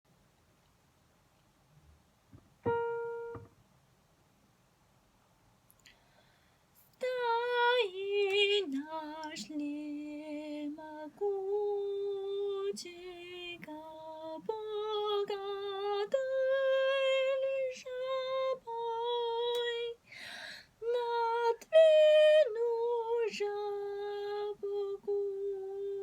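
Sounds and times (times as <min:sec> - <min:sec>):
woman singing slow melody: 0:06.9 - 0:20.0, 0:20.8 - 0:26.0.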